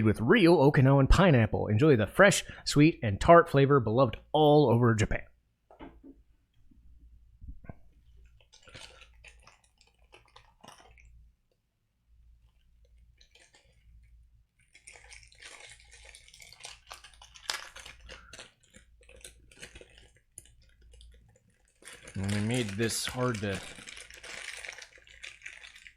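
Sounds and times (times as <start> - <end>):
candy wrapper crinkling: 8.1 - 25.9
chewing: 8.3 - 11.1, 12.5 - 22.6.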